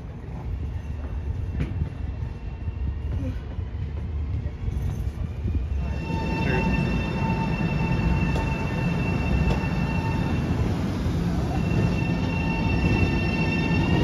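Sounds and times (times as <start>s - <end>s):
train rumble: 0.0s - 14.0s
high wheel squeal: 5.8s - 14.0s.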